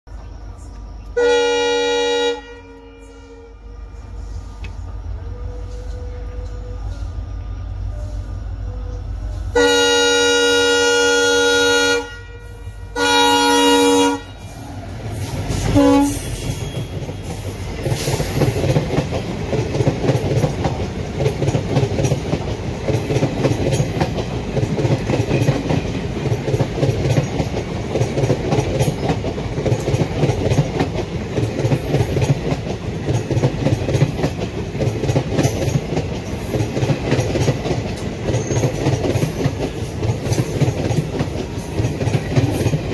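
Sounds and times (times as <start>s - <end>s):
locomotive horn blasts: 1.1s - 3.8s, 7.8s - 14.5s, 15.6s - 17.3s
train wheel clatter: 14.0s - 42.9s.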